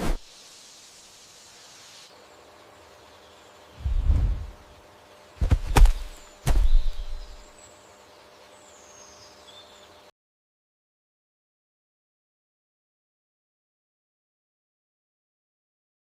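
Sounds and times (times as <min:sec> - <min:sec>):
deep heavy thuds: 0:05.4 - 0:07.4
high bird chirps: 0:05.7 - 0:07.6.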